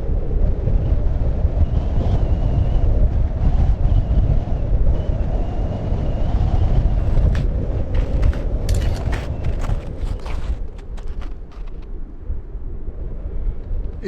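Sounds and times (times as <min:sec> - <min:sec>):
wind buffeting microphone: 0:00.0 - 0:14.0
sharp clicks or crunches: 0:07.0 - 0:11.9.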